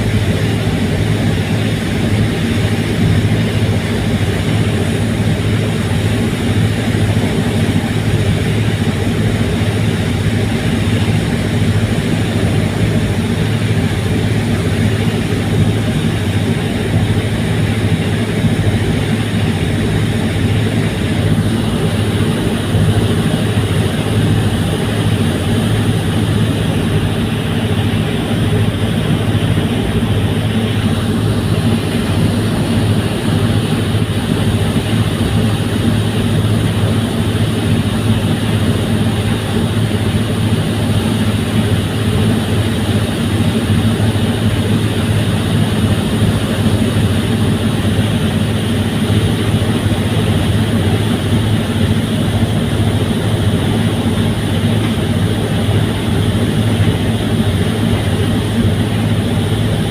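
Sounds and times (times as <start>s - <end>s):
ferry engines droning: 0.0s - 59.9s.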